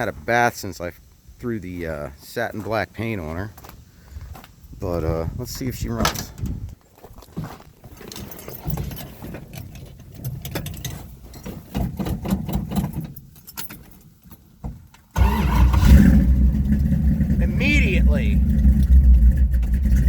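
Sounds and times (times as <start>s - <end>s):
car engine running loud: 15.2s - 20.0s
engine cranking: 15.2s - 20.0s.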